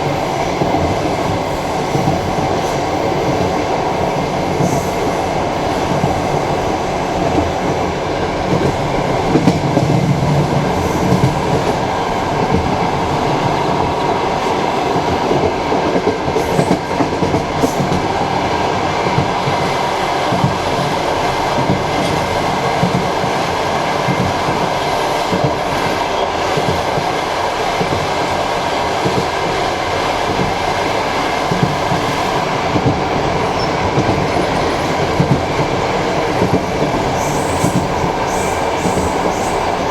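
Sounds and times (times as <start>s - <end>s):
train wheel and rail rumble: 0.0s - 39.9s.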